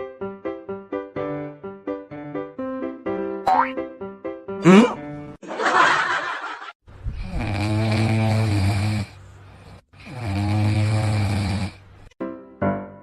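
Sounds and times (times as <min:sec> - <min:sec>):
animal snoring: 0:07.1 - 0:12.2.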